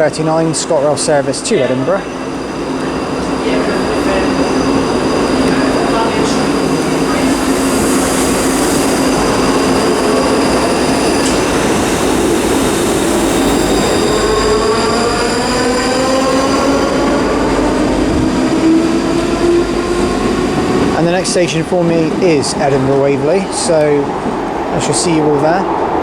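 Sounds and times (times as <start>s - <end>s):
electric train motor whine: 1.2s - 21.4s.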